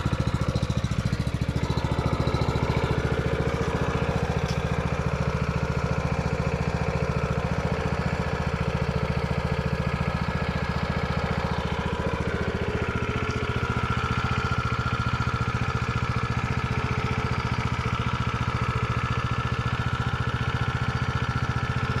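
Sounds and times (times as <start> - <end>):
high engine whine: 0.0 - 15.3
small engine running: 0.0 - 22.0.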